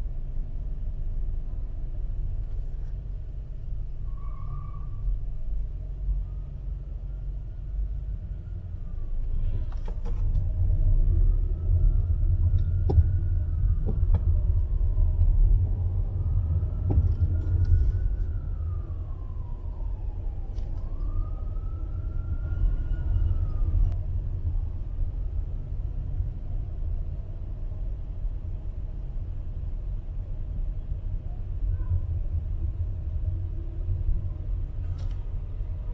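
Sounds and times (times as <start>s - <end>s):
street traffic rumble: 0.0s - 35.9s
distant siren wailing: 6.0s - 9.6s, 10.4s - 24.0s.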